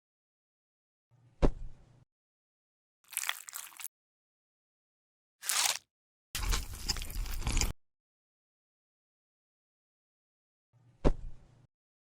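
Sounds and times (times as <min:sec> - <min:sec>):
biting and chewing: 0:03.1 - 0:03.9, 0:05.4 - 0:07.8.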